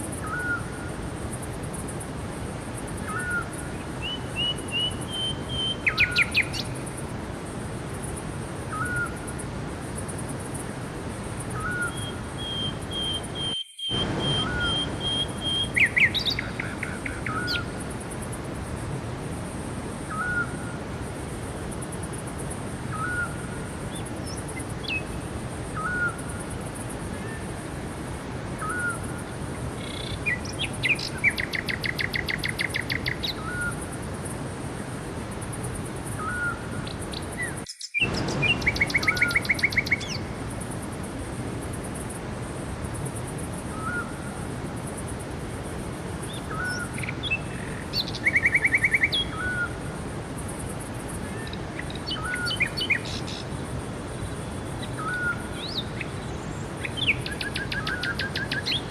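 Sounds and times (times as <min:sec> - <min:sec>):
forest birds singing: 0:00.0 - 0:00.9, 0:02.8 - 0:18.3, 0:20.1 - 0:20.8, 0:22.8 - 0:27.6, 0:28.6 - 0:34.4, 0:35.6 - 0:41.0, 0:43.2 - 0:45.2, 0:46.2 - 0:58.9
bird trills: 0:11.6 - 0:17.7, 0:37.4 - 0:40.2.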